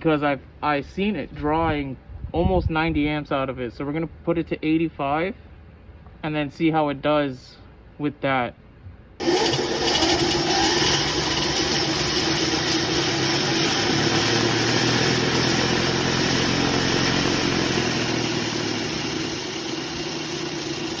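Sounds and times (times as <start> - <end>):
electric motorbike motor hum: 9.2 - 21.0.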